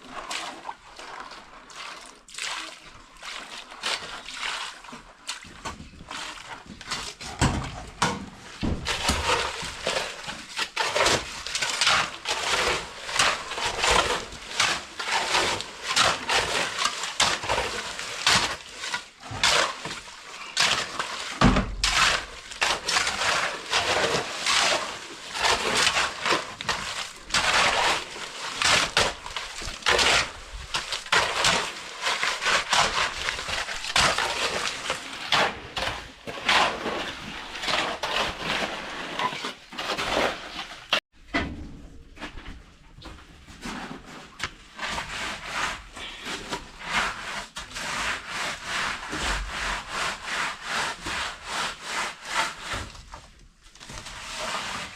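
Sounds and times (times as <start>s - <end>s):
hand tool scraping rough surface: 5.6s - 41.0s, 43.5s - 54.9s.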